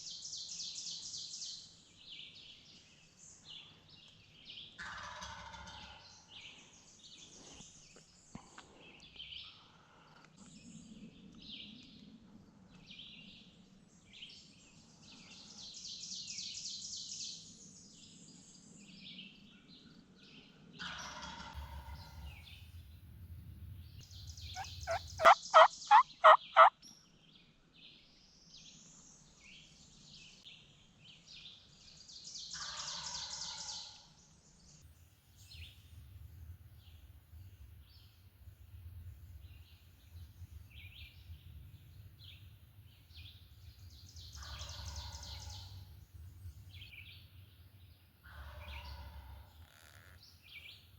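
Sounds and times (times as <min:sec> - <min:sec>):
turkey gobbling: 0:04.8 - 0:05.8, 0:24.6 - 0:26.7
songbirds singing: 0:21.6 - 0:32.6, 0:36.7 - 0:50.9
turkey yelps: 0:24.6 - 0:26.7.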